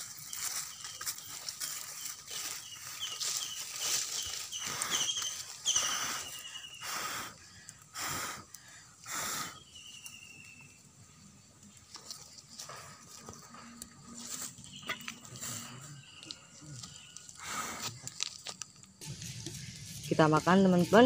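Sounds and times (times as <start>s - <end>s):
small bird chirping: 0.0s - 7.0s, 9.5s - 11.2s, 14.4s - 17.4s.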